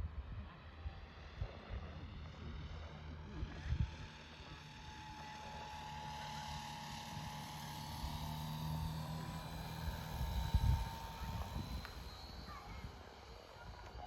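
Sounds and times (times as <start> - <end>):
model plane motor whine: 1.1 - 14.0.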